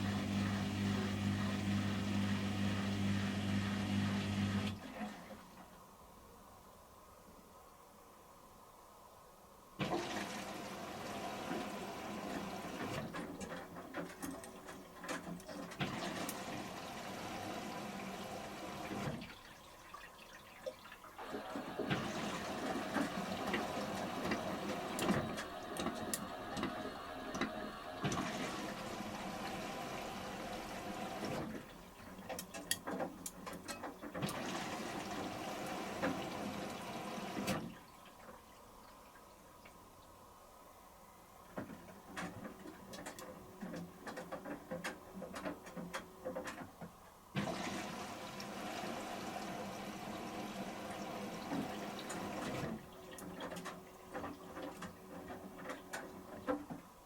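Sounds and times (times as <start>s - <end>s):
water rushing into washing machine: 0.0s - 5.7s, 9.8s - 39.2s, 47.3s - 56.9s
drum turning with sloshing: 18.8s - 30.0s
washing machine clicks: 21.8s - 28.4s, 31.4s - 34.6s.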